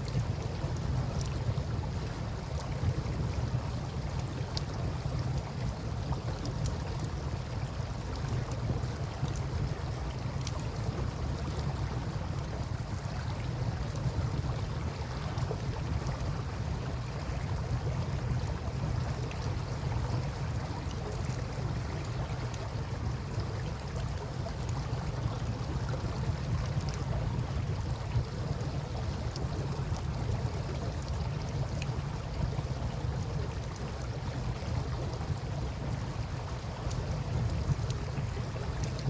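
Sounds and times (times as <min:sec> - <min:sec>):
campfire crackles: 0:00.0 - 0:39.0
moving water rumble: 0:00.0 - 0:39.0
wind: 0:00.0 - 0:39.0.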